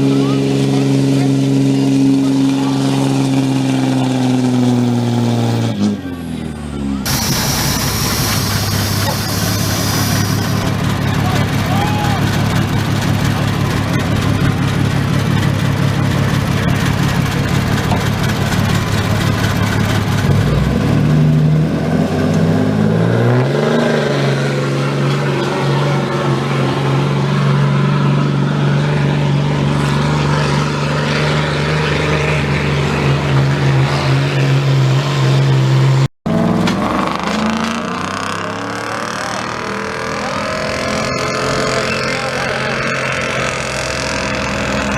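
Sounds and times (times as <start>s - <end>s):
truck engine revving under load: 0.0s - 44.9s.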